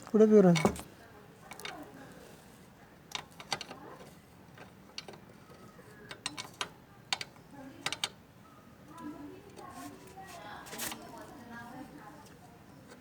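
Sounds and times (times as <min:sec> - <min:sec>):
metallic clicks of hand tools: 0:06.1 - 0:08.2.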